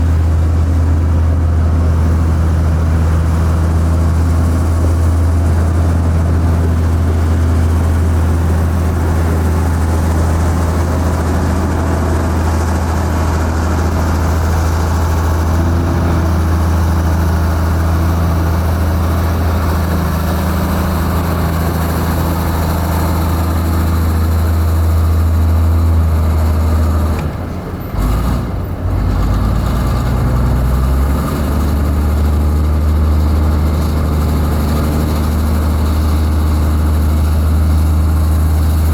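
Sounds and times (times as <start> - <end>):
heavy diesel engine droning: 0.0 - 38.9.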